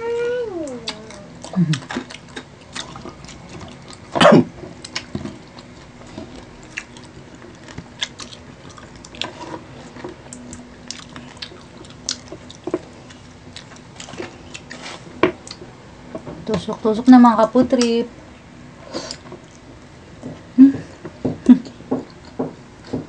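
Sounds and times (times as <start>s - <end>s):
chewing and mouth sounds: 0.6s - 15.7s.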